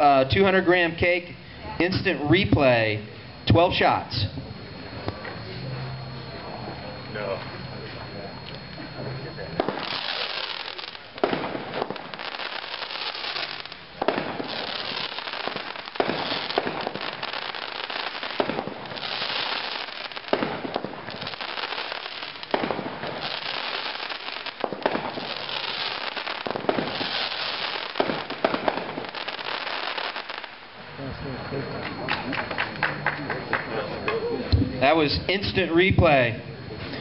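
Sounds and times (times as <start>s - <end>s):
hissing firework spray: 9.6s - 30.6s
firework bangs: 9.6s - 30.8s.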